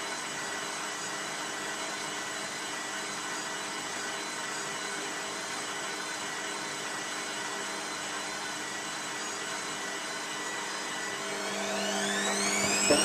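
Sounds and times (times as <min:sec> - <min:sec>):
washing machine whirring: 0:04.8 - 0:13.0
motor whining upward: 0:10.4 - 0:13.0.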